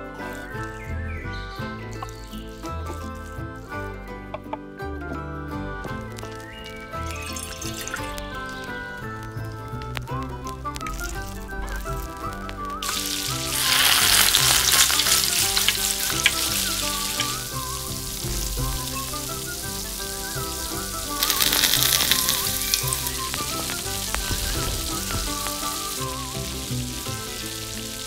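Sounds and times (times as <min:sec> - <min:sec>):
background music: 0:00.0 - 0:28.0
food sizzling in hot oil: 0:06.3 - 0:28.0.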